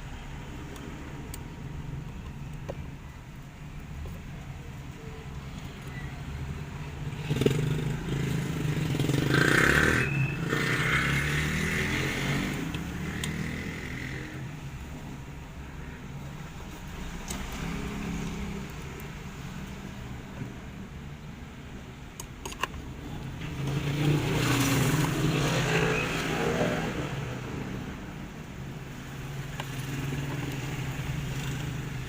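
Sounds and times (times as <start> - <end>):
vehicle engine passing by: 7.2 - 14.2, 23.4 - 27.5.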